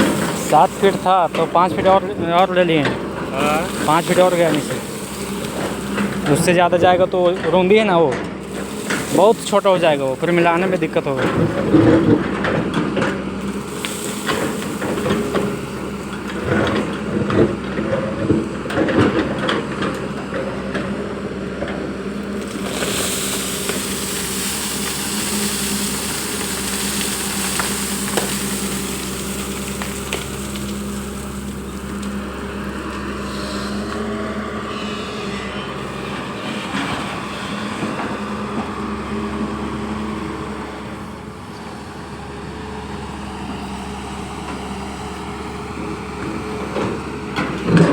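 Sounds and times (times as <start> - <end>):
hissing rush: 0.0 - 7.6, 8.4 - 12.6, 13.4 - 17.1, 22.1 - 38.2
bucket clanking and scraping soil: 0.0 - 39.9, 46.0 - 47.9
excavator diesel engine running: 0.0 - 47.9.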